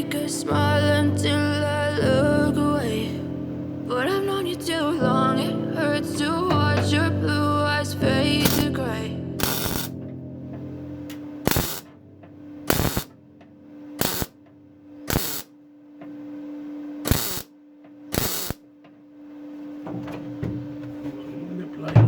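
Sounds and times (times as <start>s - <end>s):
steady low hum: 0.0s - 22.0s
power tool bursts: 8.4s - 8.8s, 9.4s - 9.9s, 11.4s - 11.9s, 12.7s - 13.1s, 14.0s - 14.4s, 15.1s - 15.5s, 17.0s - 17.5s, 18.1s - 18.6s.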